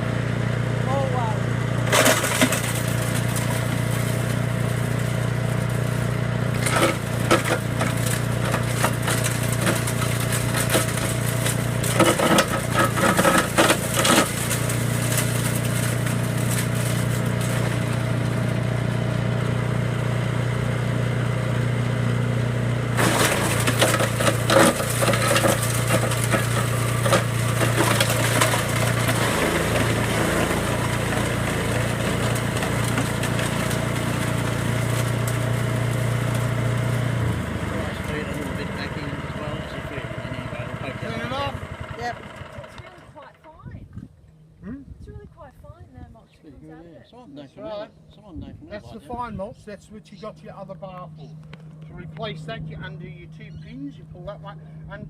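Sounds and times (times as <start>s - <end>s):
chipper shredder engine running: 0.0s - 43.8s, 50.0s - 55.0s
material cracking and crunching: 1.9s - 18.3s, 23.0s - 37.0s.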